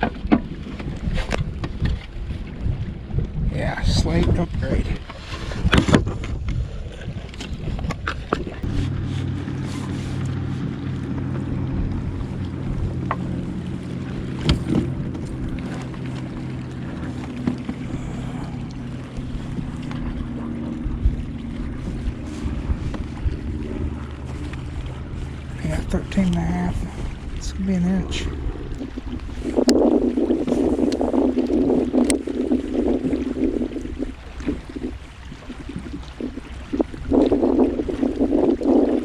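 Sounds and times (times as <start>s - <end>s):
boat motor humming: 0.0s - 39.0s
knocks on kayak hull: 14.4s - 14.9s.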